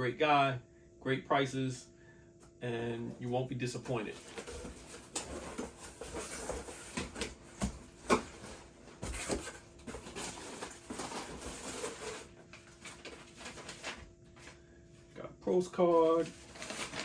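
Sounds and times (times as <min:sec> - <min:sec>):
package rustling: 0:04.1 - 0:14.1, 0:16.0 - 0:17.0.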